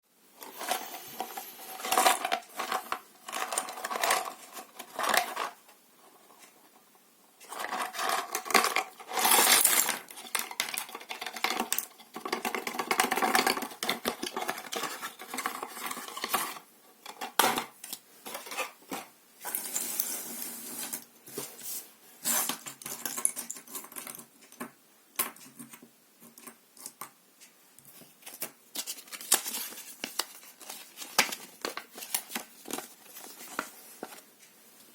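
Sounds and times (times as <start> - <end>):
plastic pieces clattering: 0.4 - 5.6, 7.5 - 20.6.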